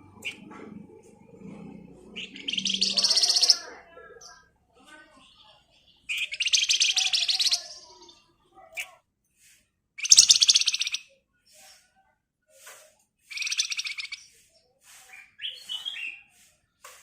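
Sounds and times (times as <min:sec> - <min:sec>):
bird singing buzzy trills: 0:01.8 - 0:04.4, 0:05.1 - 0:08.3
faint bird chips: 0:02.2 - 0:03.7, 0:05.2 - 0:17.0
bird whistled notes: 0:13.3 - 0:14.3.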